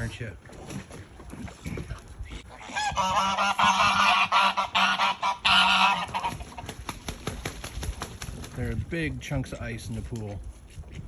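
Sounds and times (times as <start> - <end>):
geese honking: 2.6 - 6.6.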